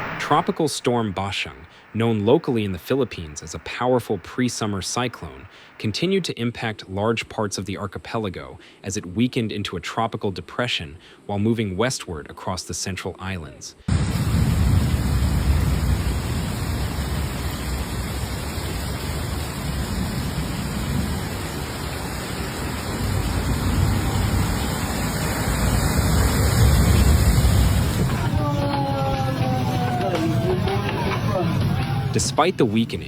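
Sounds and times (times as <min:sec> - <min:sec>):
heavy low rumble: 0:00.0 - 0:06.3
storm rushing roar: 0:00.0 - 0:06.3, 0:13.9 - 0:33.0.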